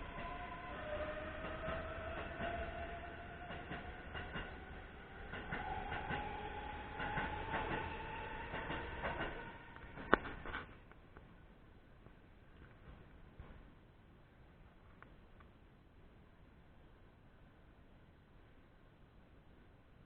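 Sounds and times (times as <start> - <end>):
electric train motor whine: 0.0 - 10.1
train rumble: 0.0 - 11.5, 12.1 - 14.1.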